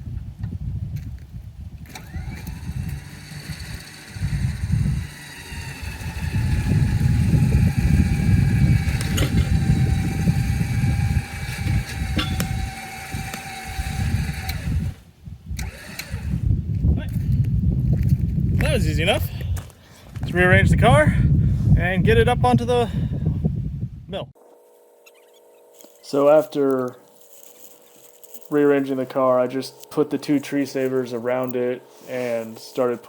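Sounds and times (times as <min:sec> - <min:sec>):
winch motor whining: 0:01.8 - 0:15.0, 0:15.6 - 0:16.5.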